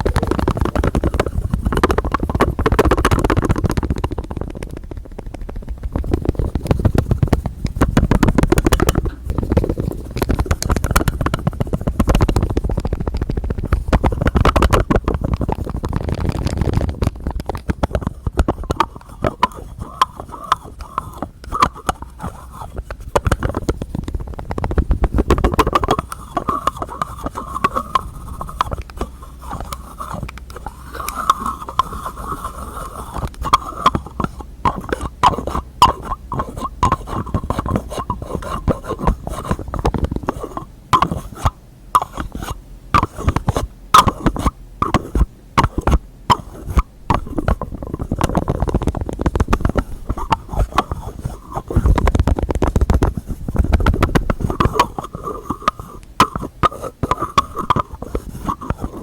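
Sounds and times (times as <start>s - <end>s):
rubbing and scratching: 0.0s - 59.0s
tapping on container lids: 17.3s - 23.8s, 25.2s - 59.0s.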